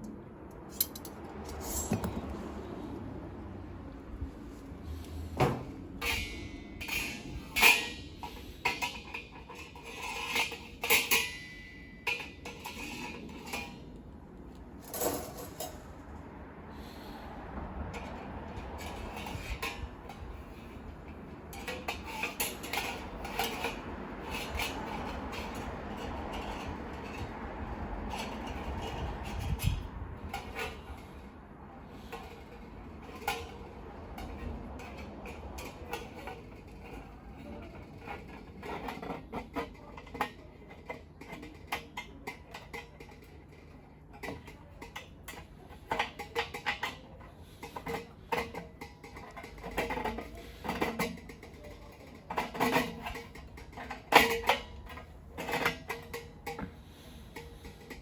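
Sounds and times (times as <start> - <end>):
metal parts clinking and clanking: 0.5 - 2.4, 5.1 - 13.8, 14.8 - 15.9.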